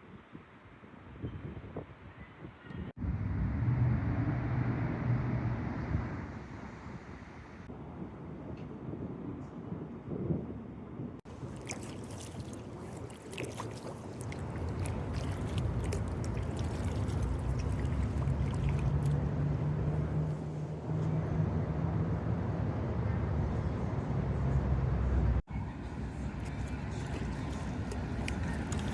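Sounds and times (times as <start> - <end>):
water dripping off paddle: 11.3 - 20.4, 26.4 - 28.9
small splashes: 11.3 - 20.7, 26.1 - 28.9.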